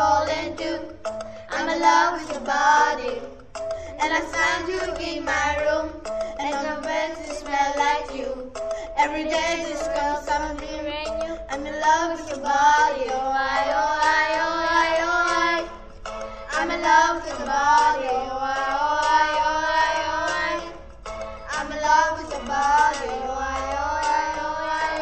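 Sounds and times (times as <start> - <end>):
musical backing: 0.0 - 25.0
person singing: 1.5 - 15.7, 16.5 - 20.8, 21.5 - 25.0.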